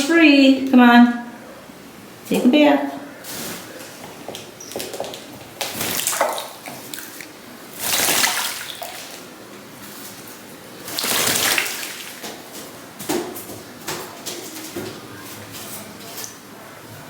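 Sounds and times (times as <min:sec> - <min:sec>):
pigeon splashing with wings: 0:03.3 - 0:13.1.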